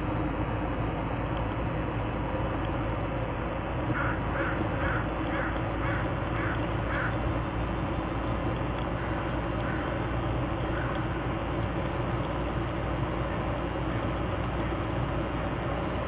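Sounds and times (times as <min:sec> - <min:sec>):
steady background noise: 0:00.0 - 0:16.0
bird harsh calls: 0:03.9 - 0:07.2.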